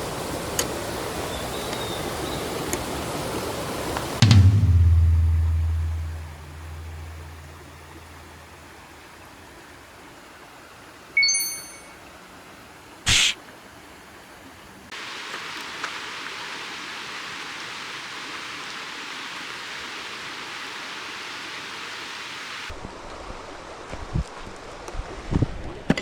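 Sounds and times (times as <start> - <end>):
short ringing ding: 11.2 - 12.0.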